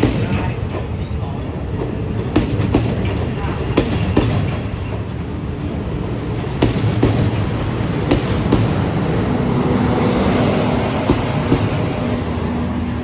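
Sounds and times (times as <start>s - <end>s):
wheels clicking over rail joints: 0.0s - 9.2s
train rumbling past: 0.0s - 13.0s.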